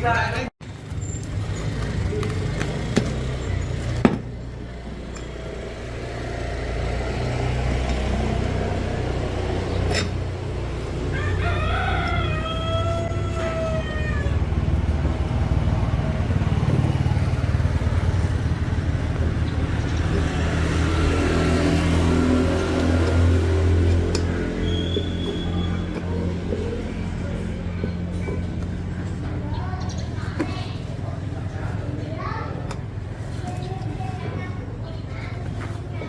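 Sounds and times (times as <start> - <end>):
rooster crowing: 11.0 - 14.6.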